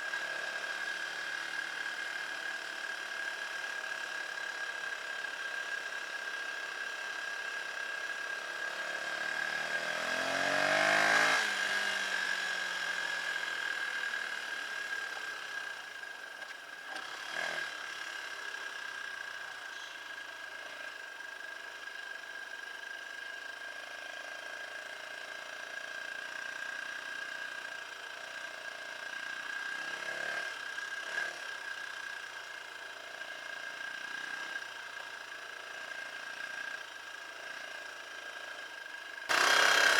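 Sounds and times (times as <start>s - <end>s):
dirt bike engine revving: 8.9s - 12.2s, 39.3s - 39.9s.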